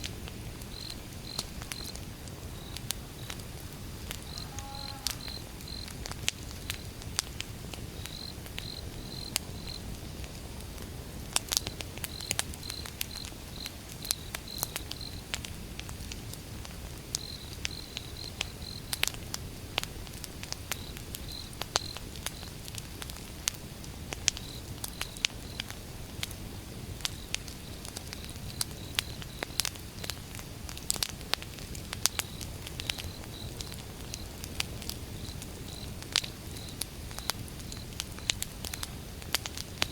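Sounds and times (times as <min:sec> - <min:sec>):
wood fire crackling: 0:00.0 - 0:39.9
cricket chirping: 0:00.7 - 0:06.9, 0:08.0 - 0:09.9, 0:17.2 - 0:19.0, 0:27.1 - 0:29.7, 0:32.1 - 0:34.4, 0:35.1 - 0:39.0.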